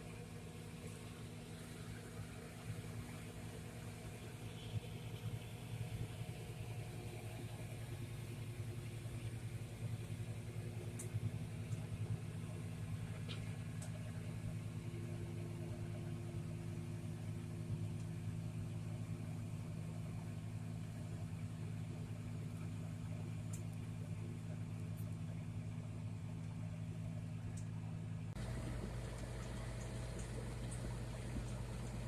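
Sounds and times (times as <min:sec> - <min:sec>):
tractor diesel engine running: 0:27.8 - 0:32.0.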